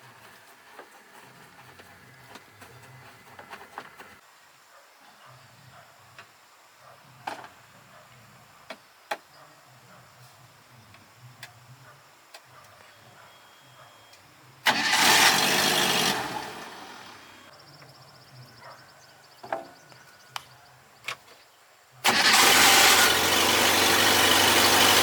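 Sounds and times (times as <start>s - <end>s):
truck engine cranking and firing: 14.7s - 17.5s, 22.0s - 25.0s.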